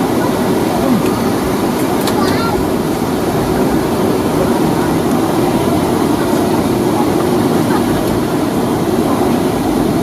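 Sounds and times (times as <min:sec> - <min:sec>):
jet engines rumbling in cabin: 0:00.0 - 0:10.0.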